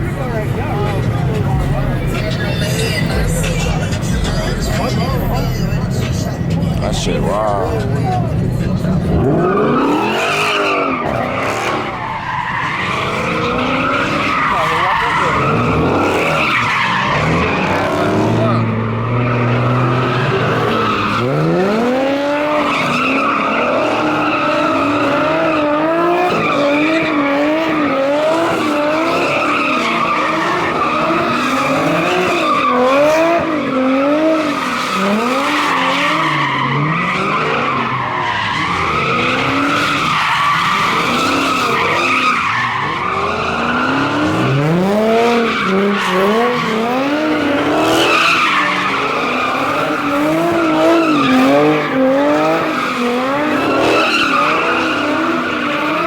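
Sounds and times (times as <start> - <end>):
car engine revving: 0.0 - 56.0
tires squealing: 0.0 - 56.0.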